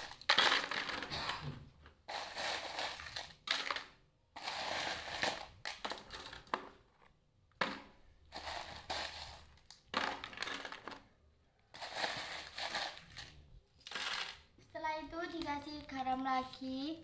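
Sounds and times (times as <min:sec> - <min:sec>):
ice cubes clattering into bucket: 0:00.0 - 0:01.2, 0:02.1 - 0:06.7, 0:07.6 - 0:11.0, 0:11.8 - 0:14.4.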